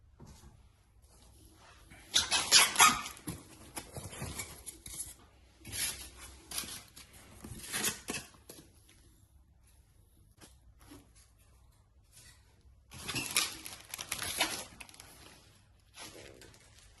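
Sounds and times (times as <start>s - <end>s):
packaging rustling: 12.9s - 17.0s.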